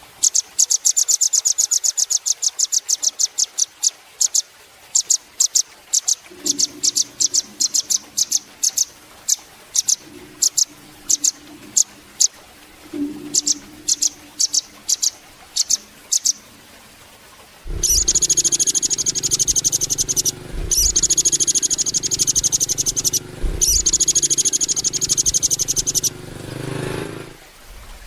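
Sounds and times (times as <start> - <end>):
bird chips and trills: 5.0 - 16.5, 17.7 - 26.2
low hum: 6.3 - 28.0.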